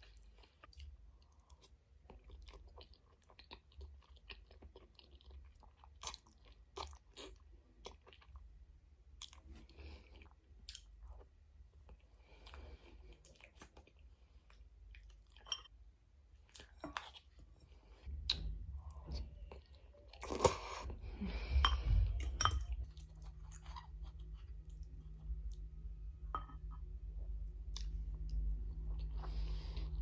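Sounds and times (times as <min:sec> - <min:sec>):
chewing and wet mouth clicks: 0:10.2 - 0:11.0, 0:18.3 - 0:18.5, 0:27.6 - 0:29.2
steady low hum: 0:17.4 - 0:30.0.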